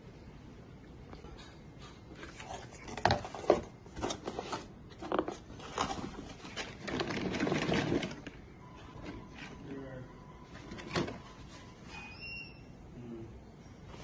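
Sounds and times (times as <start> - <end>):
objects knocking and clattering: 1.1 - 9.6
scraping and rustling: 1.4 - 9.7.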